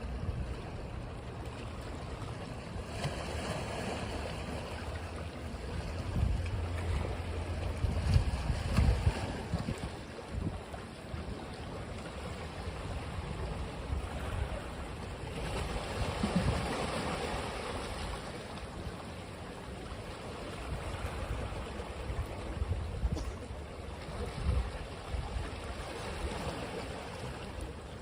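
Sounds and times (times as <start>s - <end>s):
ocean waves washing onto beach: 0.0s - 28.0s
wind on microphone: 5.8s - 11.3s, 20.6s - 26.4s.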